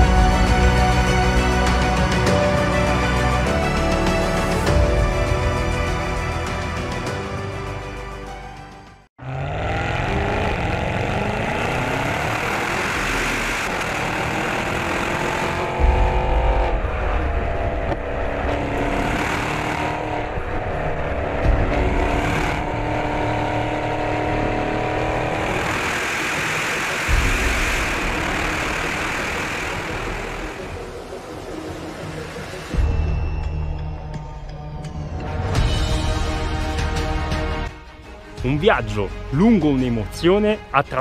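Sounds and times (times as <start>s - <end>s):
car engine accelerating hard: 9.2s - 32.8s.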